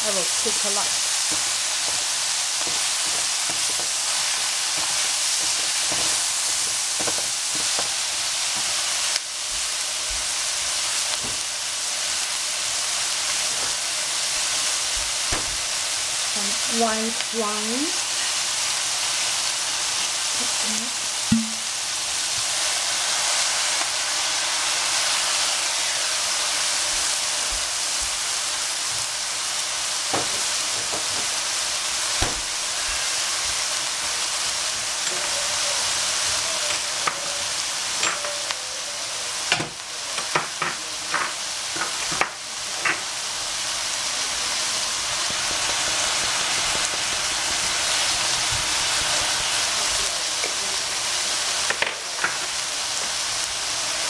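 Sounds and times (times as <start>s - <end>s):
vegetables sizzling in a frying pan: 0.0s - 54.0s.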